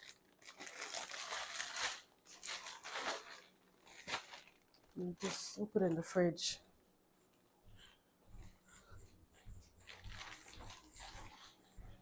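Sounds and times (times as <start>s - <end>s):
plastic packaging crinkling: 0.0s - 6.2s, 9.8s - 11.6s.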